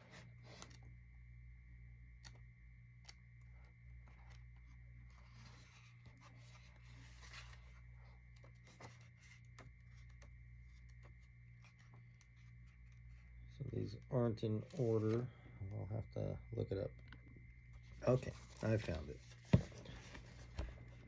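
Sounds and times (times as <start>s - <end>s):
low hum: 0.0s - 21.0s
pages rustling: 3.9s - 13.3s, 14.6s - 15.3s, 17.8s - 21.0s.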